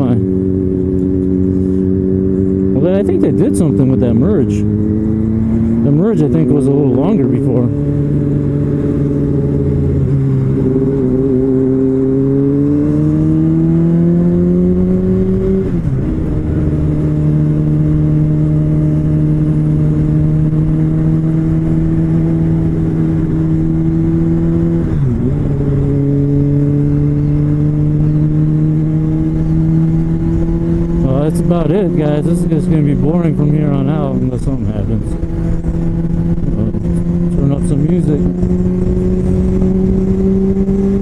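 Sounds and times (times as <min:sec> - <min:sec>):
motorcycle engine accelerating: 0:00.0 - 0:41.0.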